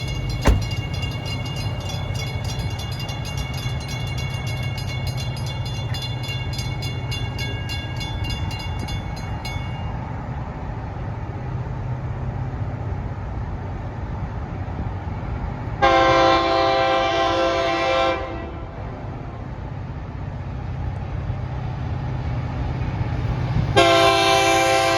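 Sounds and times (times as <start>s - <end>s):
diesel locomotive rumble: 0.0s - 24.9s
locomotive air horn chord: 15.8s - 18.6s, 23.8s - 24.9s.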